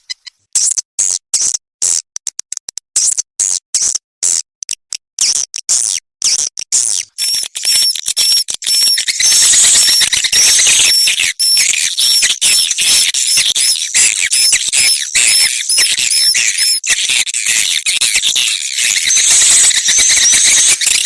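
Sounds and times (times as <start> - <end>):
swiftlets twittering: 7.2 - 21.0.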